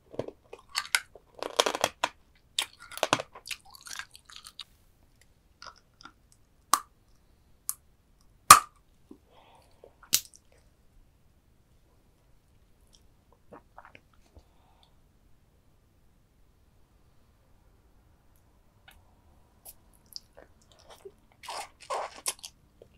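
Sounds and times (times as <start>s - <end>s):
chewing and crunching crab shell: 0.2s - 4.7s, 20.2s - 22.9s.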